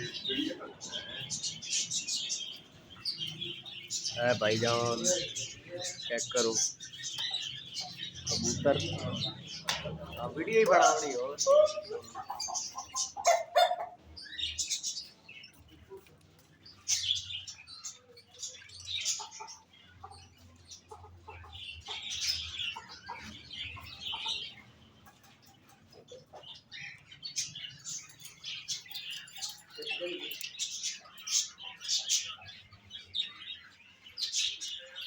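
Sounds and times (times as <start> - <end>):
caged birds chirping and twittering: 0.0 - 35.0.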